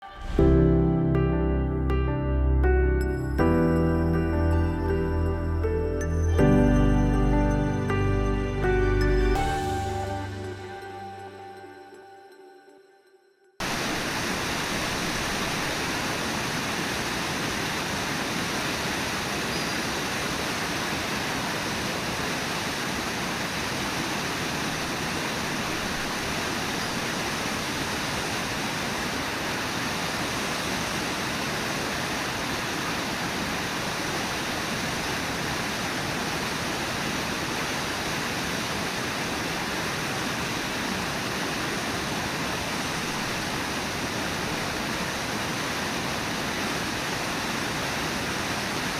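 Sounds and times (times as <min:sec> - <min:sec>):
waterfall rushing: 0:00.0 - 0:01.3, 0:13.6 - 0:48.9.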